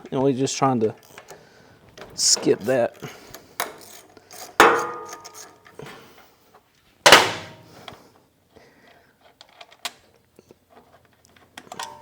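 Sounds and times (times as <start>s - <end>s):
metal clanking on hard surface: 4.6s - 5.6s.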